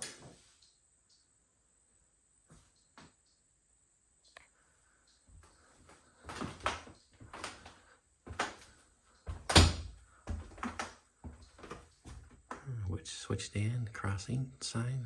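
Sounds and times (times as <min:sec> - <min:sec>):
footsteps on wooden floor: 0:05.4 - 0:12.6.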